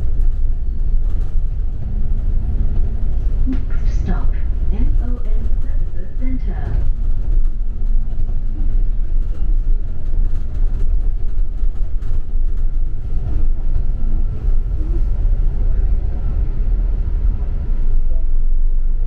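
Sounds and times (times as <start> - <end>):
faint clicks and rattles: 0.0 - 14.0
bus engine and road rumble: 0.0 - 19.0.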